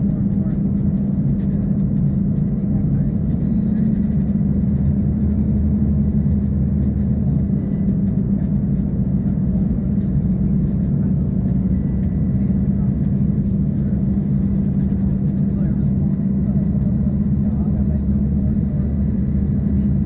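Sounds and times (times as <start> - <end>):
airflow rumble: 0.0 - 20.0
jet engine cabin hum: 0.0 - 20.0.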